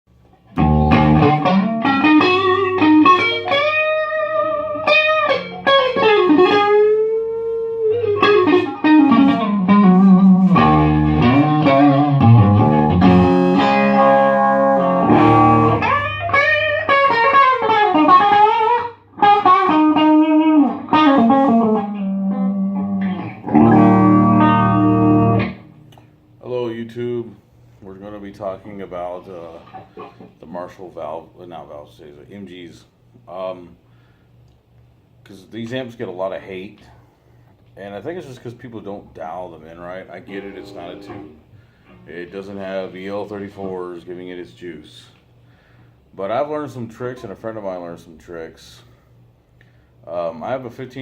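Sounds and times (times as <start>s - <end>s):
electric guitar lead line: 0.5s - 25.9s, 40.0s - 43.8s.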